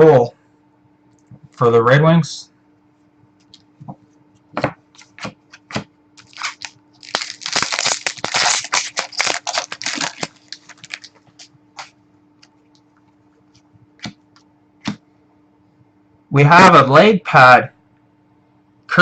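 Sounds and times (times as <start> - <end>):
wrapper tearing and crinkling: 5.0 - 12.0
cards and packaging clicking: 5.0 - 12.6.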